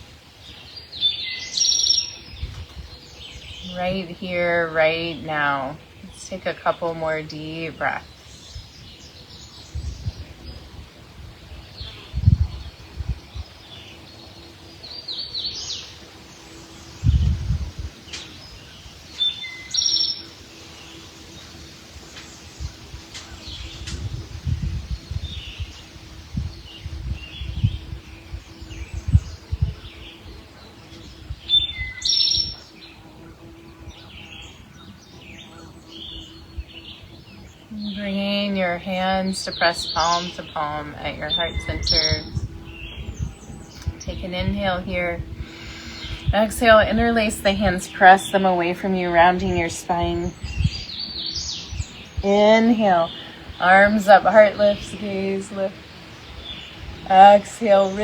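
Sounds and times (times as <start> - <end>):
birds chirping: 0.0 - 58.0
low rumbles: 32.4 - 58.0.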